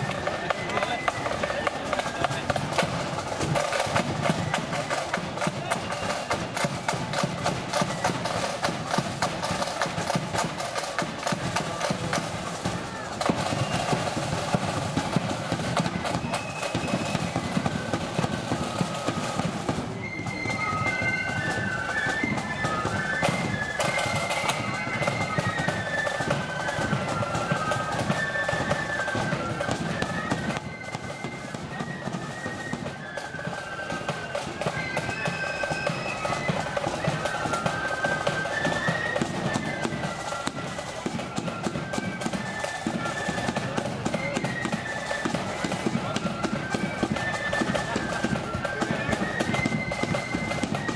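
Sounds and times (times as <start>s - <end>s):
heavy rapid drumming: 0.0s - 32.0s
high flute melody: 0.0s - 50.9s.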